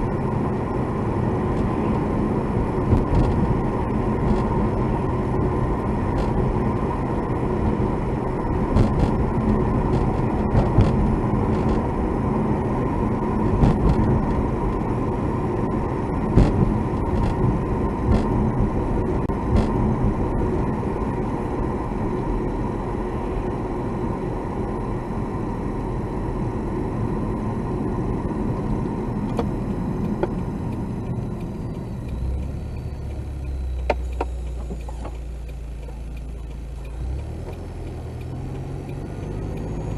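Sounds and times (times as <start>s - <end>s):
car engine and road rumble: 0.0s - 39.9s
sharp ticks inside car: 15.9s - 21.2s, 28.5s - 39.9s.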